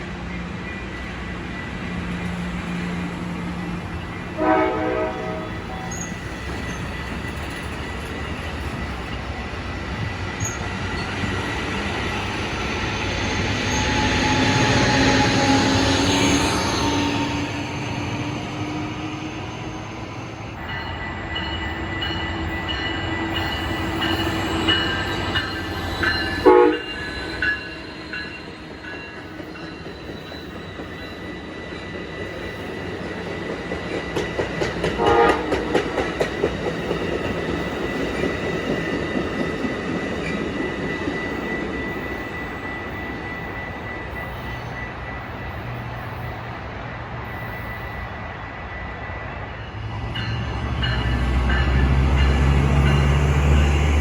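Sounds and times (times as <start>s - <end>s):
train rumble: 0.0s - 54.0s
train horn: 4.3s - 6.0s, 26.4s - 27.1s, 35.0s - 35.9s.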